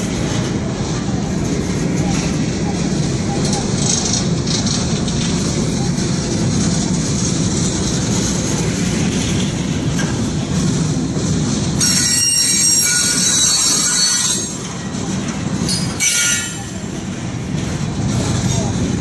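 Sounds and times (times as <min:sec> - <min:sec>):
freight cars rolling: 0:00.0 - 0:19.0
metallic wheel squeal: 0:11.8 - 0:14.7, 0:15.7 - 0:16.8.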